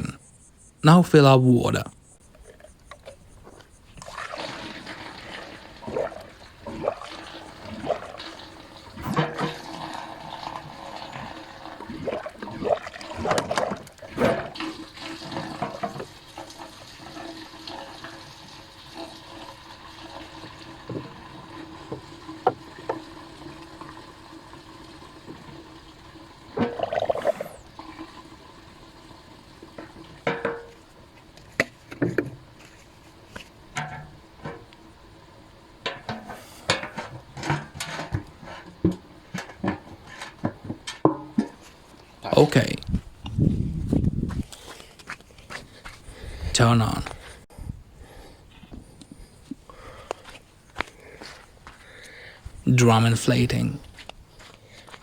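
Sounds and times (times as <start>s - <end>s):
water pouring into metal drum: 4.0s - 43.0s
knocks and clunks: 35.9s - 41.6s.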